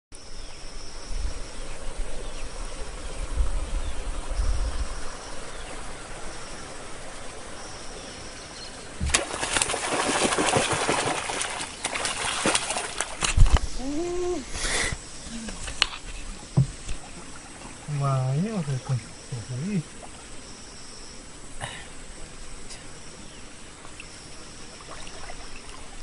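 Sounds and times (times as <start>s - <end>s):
rustling thrashing noise: 9.0s - 13.8s.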